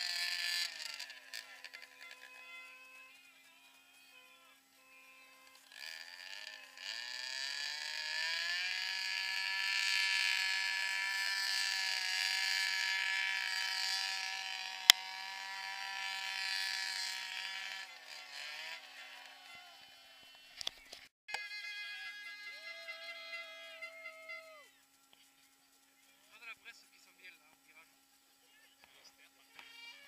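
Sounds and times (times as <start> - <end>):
distant rally car engine revving: 0.0 - 20.9.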